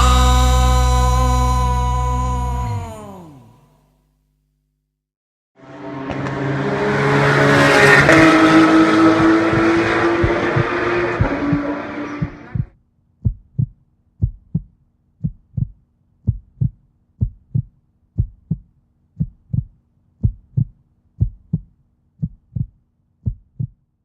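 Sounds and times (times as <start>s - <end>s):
heartbeat thumps: 7.9s - 23.8s.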